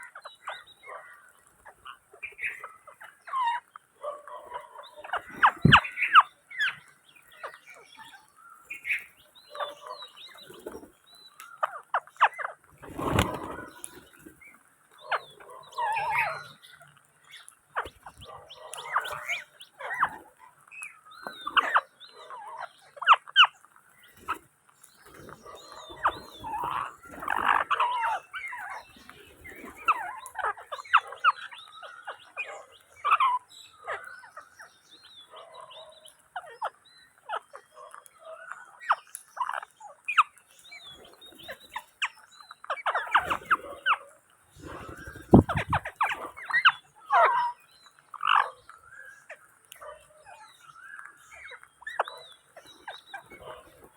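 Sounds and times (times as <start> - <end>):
parrots squawking: 25.4 - 28.8, 44.6 - 47.5.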